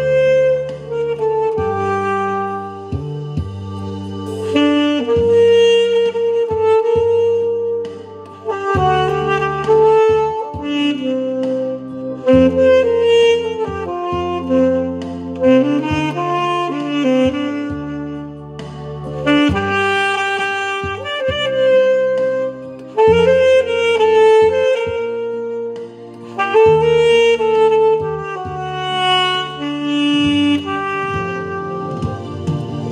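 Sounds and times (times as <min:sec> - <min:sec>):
backing track with bass notes: 0:00.0 - 0:32.9
saxophone melody: 0:00.0 - 0:32.9.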